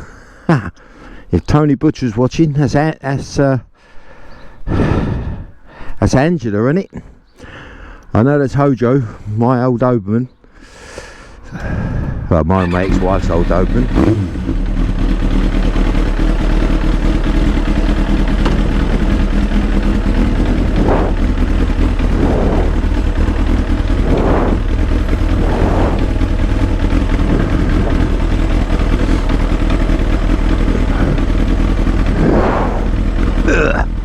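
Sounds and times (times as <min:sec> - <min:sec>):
motorcycle engine and exhaust running: 0:12.7 - 0:34.0.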